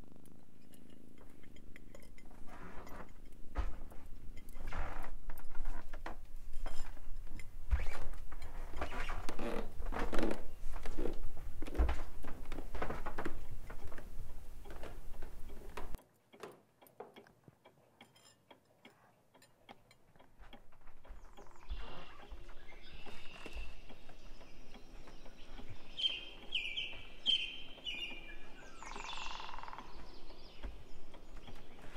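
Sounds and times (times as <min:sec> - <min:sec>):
footsteps on wooden stairs: 0:02.9 - 0:17.3, 0:19.7 - 0:31.9
wall clock ticking: 0:12.5 - 0:31.9
birds chirping: 0:20.2 - 0:31.9.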